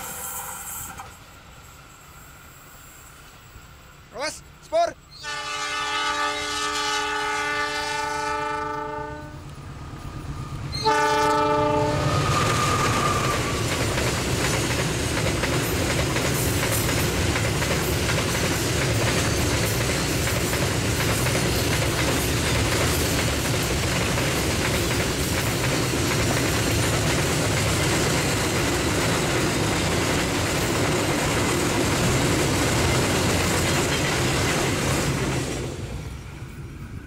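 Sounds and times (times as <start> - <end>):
locomotive warning horn: 5.2 - 9.5, 10.8 - 13.5.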